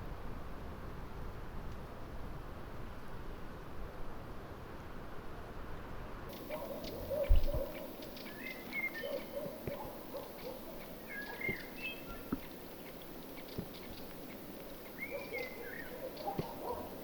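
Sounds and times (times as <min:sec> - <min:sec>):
birds calling: 0:06.3 - 0:17.0.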